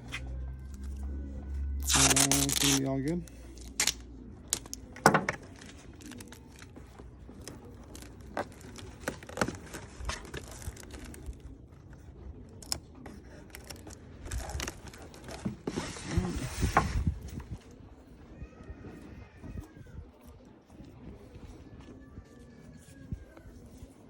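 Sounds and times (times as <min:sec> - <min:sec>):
cardboard box rustling: 0:04.6 - 0:11.4.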